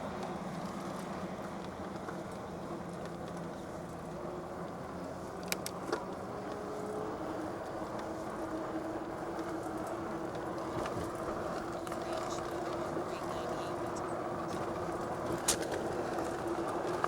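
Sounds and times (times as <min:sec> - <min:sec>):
bike rolling noise: 0:00.0 - 0:17.0.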